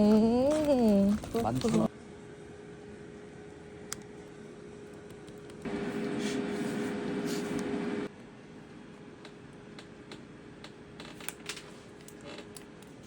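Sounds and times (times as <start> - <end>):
appliance motor humming: 0.0 - 1.9.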